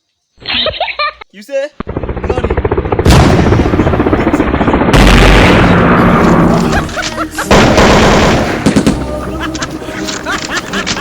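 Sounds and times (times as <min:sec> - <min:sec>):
explosion blasts: 0:02.2 - 0:09.0
gunfire: 0:03.0 - 0:09.1.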